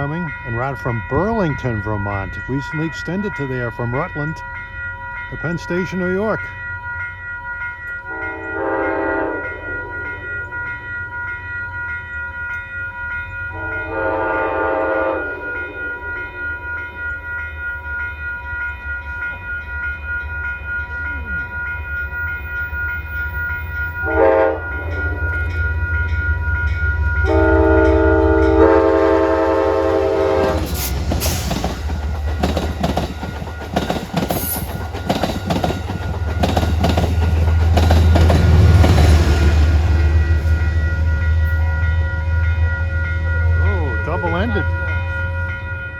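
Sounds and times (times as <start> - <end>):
train horn blasts: 8.1 - 10.8, 13.5 - 16.6, 23.9 - 26.0, 27.2 - 31.5
train wheels clattering on rails: 29.0 - 41.6.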